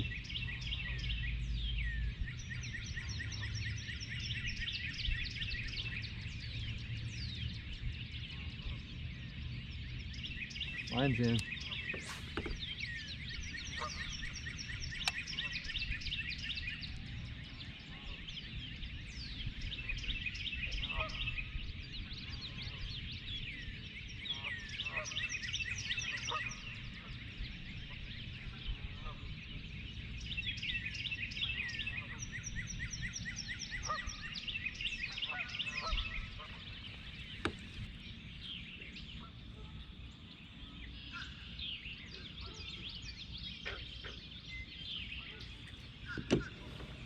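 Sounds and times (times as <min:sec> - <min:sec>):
wild birds chirping and trilling: 0:00.0 - 0:47.0
waterfowl honking: 0:13.6 - 0:14.4, 0:33.7 - 0:34.3, 0:35.1 - 0:37.6.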